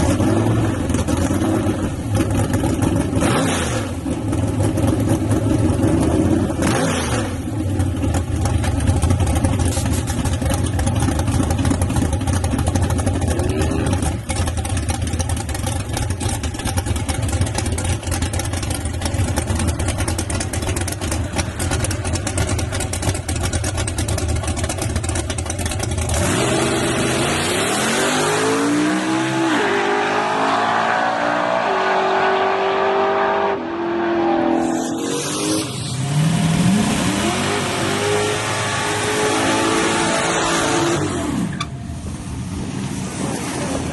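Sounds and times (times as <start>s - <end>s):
truck engine revving and accelerating: 0.0s - 7.8s, 26.0s - 43.9s.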